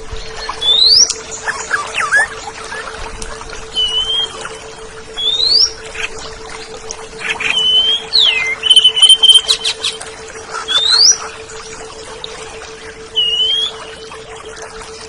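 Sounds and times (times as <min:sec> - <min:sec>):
low hum: 0:00.0 - 0:15.0
songbird whistling: 0:00.4 - 0:02.9, 0:03.7 - 0:04.4, 0:05.2 - 0:06.1, 0:07.2 - 0:10.0, 0:10.7 - 0:11.3, 0:13.1 - 0:14.0.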